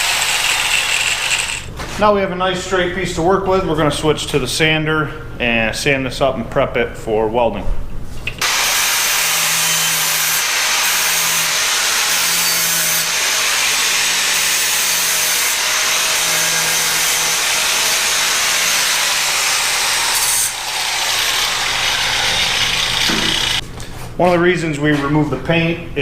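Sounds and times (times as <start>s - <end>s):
power sander on metal: 0.0s - 1.7s, 8.4s - 23.6s.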